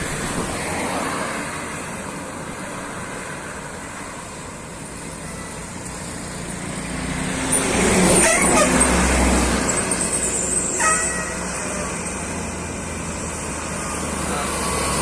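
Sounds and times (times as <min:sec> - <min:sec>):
heavy vehicle engine passing: 0:05.0 - 0:15.0.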